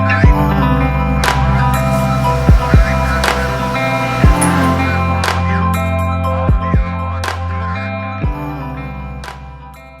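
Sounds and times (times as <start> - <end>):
background music with a beat: 0.0 - 9.7
cymbal-like hit: 1.2 - 6.7.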